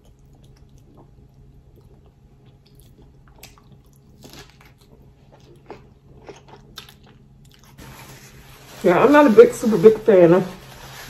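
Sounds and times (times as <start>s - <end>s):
chewing crunchy lettuce: 0.0s - 7.8s.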